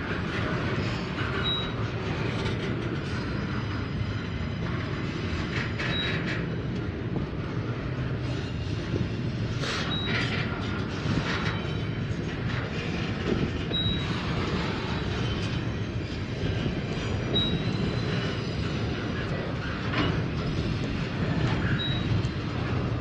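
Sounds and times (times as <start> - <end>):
train wheels rumbling on track: 0.0 - 23.0
high wheel squeals: 13.6 - 20.2, 21.6 - 22.2.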